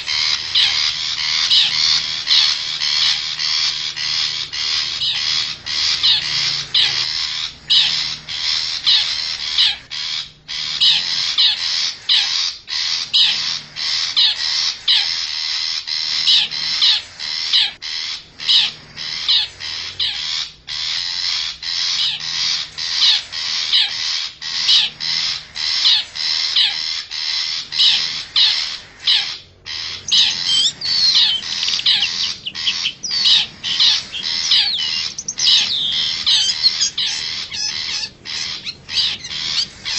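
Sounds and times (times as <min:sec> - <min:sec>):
shrike harsh scratchy calls: 0:00.0 - 0:39.9.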